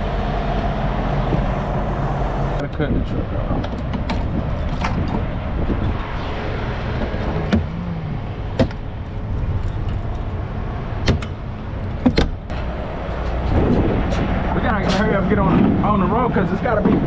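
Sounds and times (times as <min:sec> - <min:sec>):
truck engine rumble: 0:00.0 - 0:17.0
keys jangling: 0:09.0 - 0:12.5.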